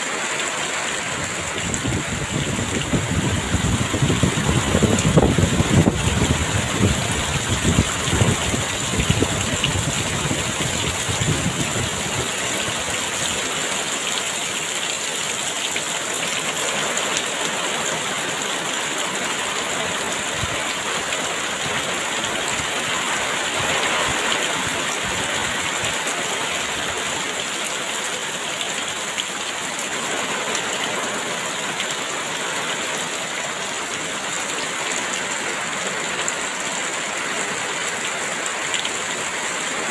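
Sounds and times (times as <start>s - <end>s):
heavy rain hissing: 0.0s - 39.9s
wind gusts rumbling: 1.1s - 13.5s.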